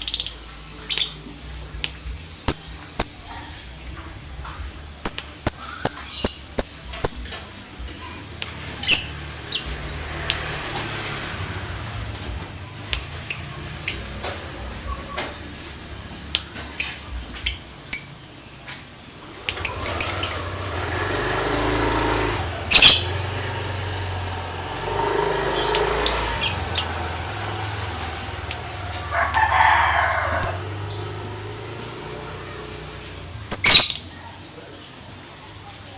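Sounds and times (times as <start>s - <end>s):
rooster crowing: 28.7s - 30.9s.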